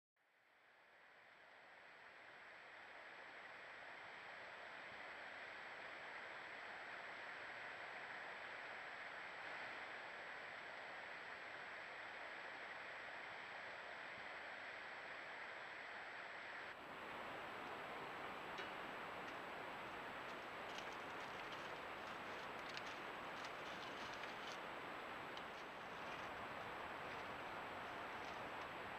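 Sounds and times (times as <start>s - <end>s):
faint outdoor hiss: 0.2s - 28.9s
faint ticks: 18.5s - 24.6s.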